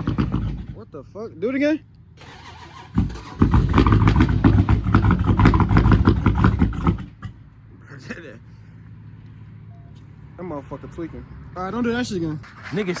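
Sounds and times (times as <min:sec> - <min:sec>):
car engine cranking: 0:00.0 - 0:00.9, 0:02.2 - 0:07.4, 0:12.0 - 0:13.0.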